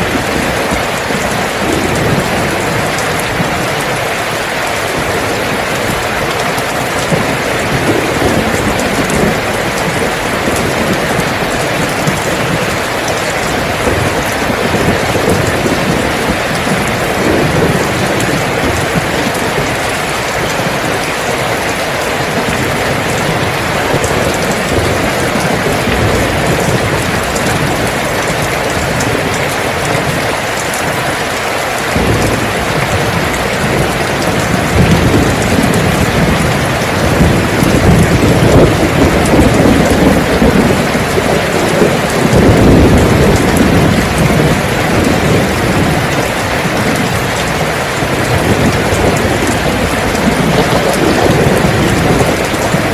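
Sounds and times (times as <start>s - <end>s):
heavy rain falling: 0.0s - 52.9s
low rumble of thunder: 0.0s - 52.9s.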